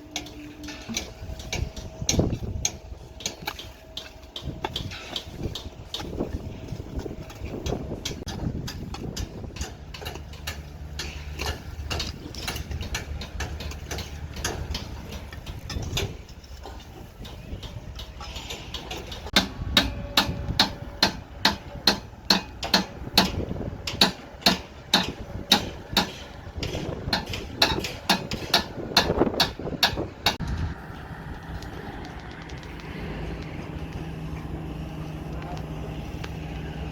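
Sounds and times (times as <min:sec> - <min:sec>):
low machine hum: 0:30.3 - 0:36.9.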